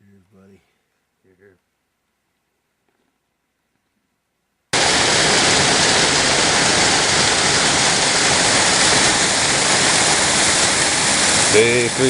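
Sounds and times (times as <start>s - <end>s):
waterfall rushing: 4.8s - 12.0s.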